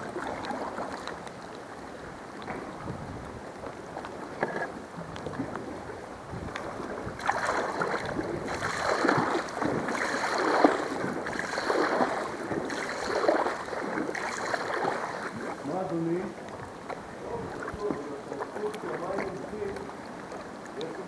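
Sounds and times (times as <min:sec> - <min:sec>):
kayak paddle splashing in water: 0:00.0 - 0:21.0.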